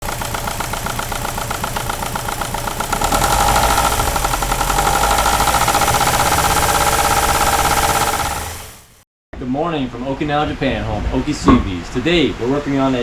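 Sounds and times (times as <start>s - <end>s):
car engine running with knock: 0.0s - 9.0s.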